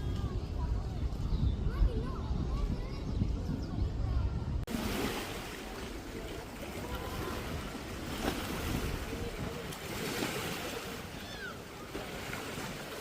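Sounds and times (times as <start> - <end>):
faint distant voices: 0.0 - 13.0
wind: 0.0 - 13.0
water washing against shore: 4.7 - 13.0.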